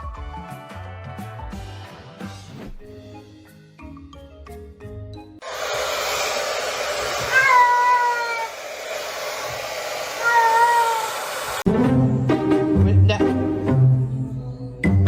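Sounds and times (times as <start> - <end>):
music with mallet notes: 2.9 - 5.4, 11.7 - 15.0
cat meowing: 7.3 - 8.5, 10.2 - 11.1.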